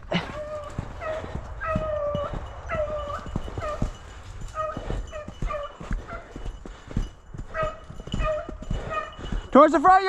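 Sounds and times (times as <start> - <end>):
hunting dog baying: 0.0 - 9.7.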